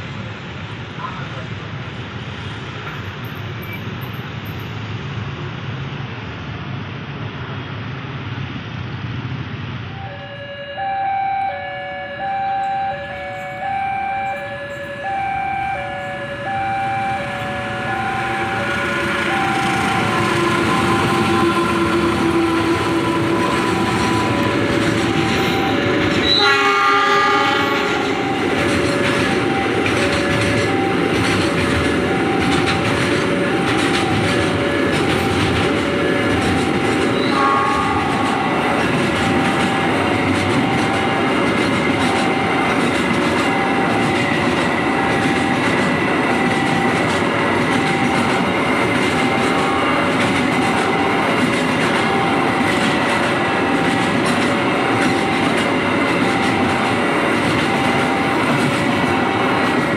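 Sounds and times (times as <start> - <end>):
locomotive horn: 10.0 - 59.9
train wheels clattering on rails: 12.2 - 59.9
crossing bell two-tone ding-dong: 27.6 - 41.3.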